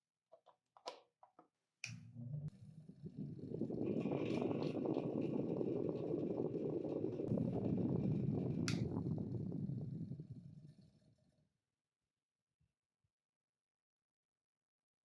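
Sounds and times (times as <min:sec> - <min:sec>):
electric fan running: 0:01.9 - 0:10.3.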